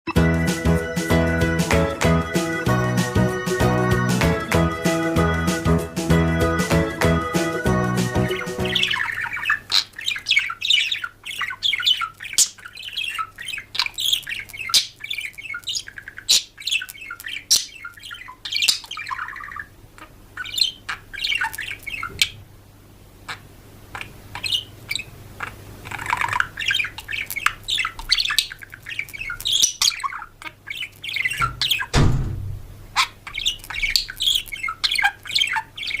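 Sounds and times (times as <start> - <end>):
birds chirping and squawking: 0.1 - 22.4, 23.2 - 36.0
low thump: 31.9 - 32.7.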